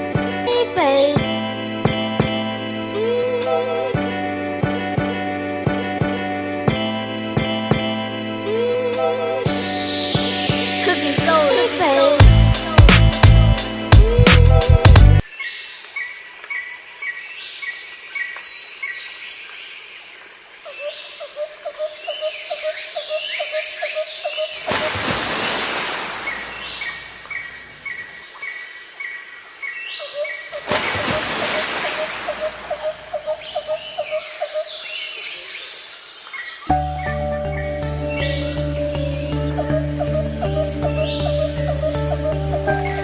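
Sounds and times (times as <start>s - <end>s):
small birds chirping: 25.8s - 43.0s.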